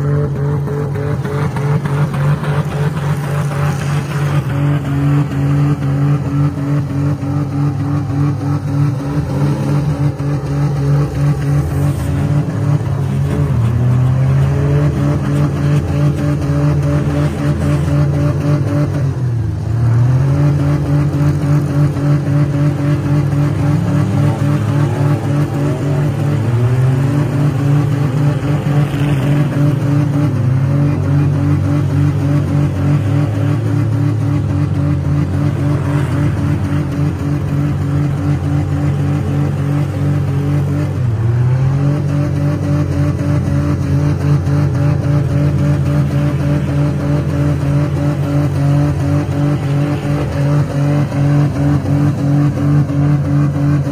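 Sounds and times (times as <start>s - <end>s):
car engines revving: 0.0s - 53.9s.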